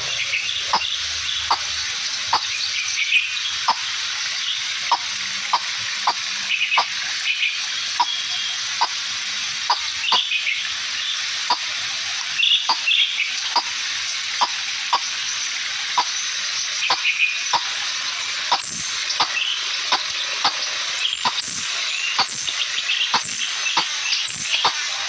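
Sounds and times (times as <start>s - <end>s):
bird chirps: 0.0s - 1.7s, 2.3s - 3.8s, 4.9s - 9.0s, 12.4s - 13.7s, 14.4s - 15.1s, 16.8s - 17.8s, 18.5s - 24.9s
steady high hiss: 0.0s - 25.0s
sharp ticking: 4.9s - 6.2s, 18.5s - 24.8s.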